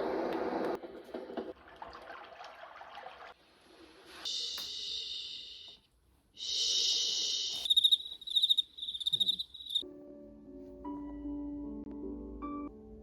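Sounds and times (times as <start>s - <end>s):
steady hiss bursts: 6.4s - 8.0s
rapid cricket chirping: 6.4s - 9.8s.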